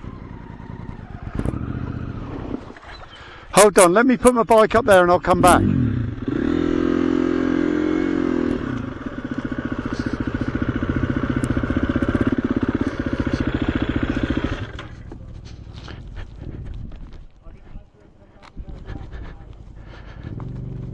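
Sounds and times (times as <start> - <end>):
dirt bike engine revving: 0.0 - 3.0, 5.2 - 16.1, 20.0 - 20.9.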